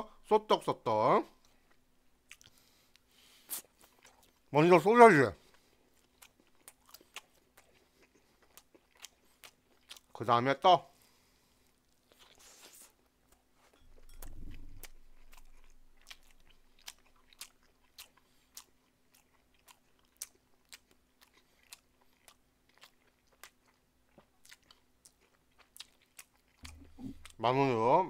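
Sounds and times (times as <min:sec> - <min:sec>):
chewing with wet mouth clicks: 0:01.4 - 0:04.4, 0:05.5 - 0:10.1, 0:13.3 - 0:27.4.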